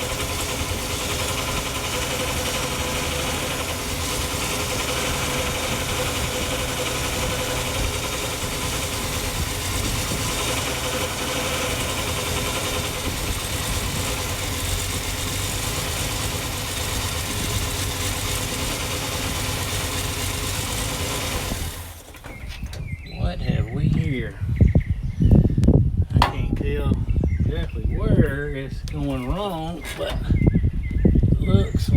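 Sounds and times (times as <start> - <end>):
engine running steadily: 0.0 - 24.4, 26.2 - 27.0.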